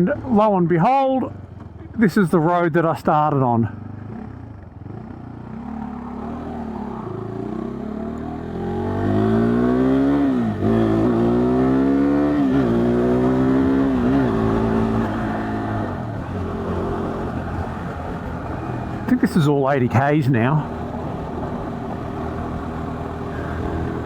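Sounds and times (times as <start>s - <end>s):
motorcycle engine accelerating: 3.7s - 24.0s.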